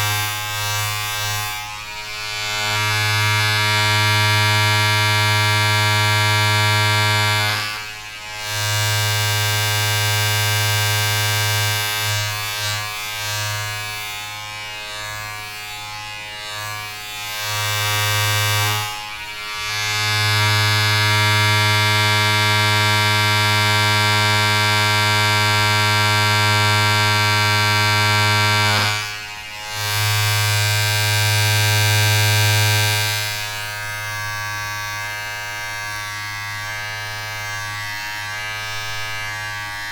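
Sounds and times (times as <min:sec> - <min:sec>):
low electric buzz: 0:00.0 - 0:39.9.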